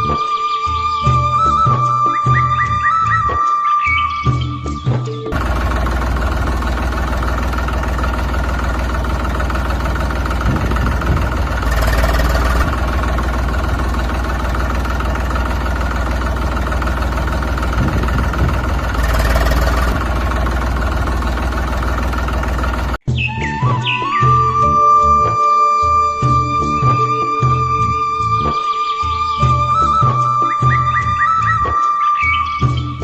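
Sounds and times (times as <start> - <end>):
engine idling with deep rumble: 5.3 - 23.1.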